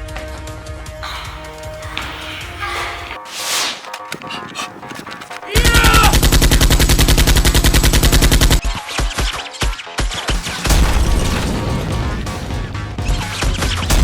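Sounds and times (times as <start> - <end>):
machine-gun fire: 5.6 - 8.6, 10.4 - 14.0.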